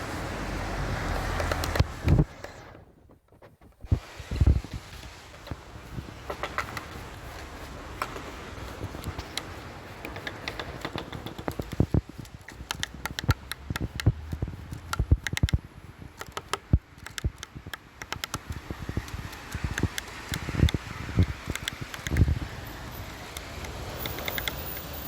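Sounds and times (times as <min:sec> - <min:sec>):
woodpecker pecking at wood: 0:01.1 - 0:02.6, 0:04.8 - 0:25.0.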